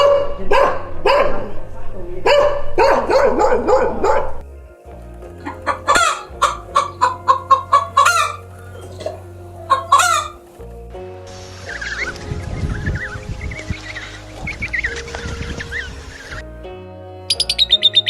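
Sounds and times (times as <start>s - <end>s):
music: 0.0s - 18.0s
chickens clucking and cackling: 5.3s - 10.6s, 11.3s - 16.4s
animal calls: 5.4s - 10.4s, 11.6s - 16.4s.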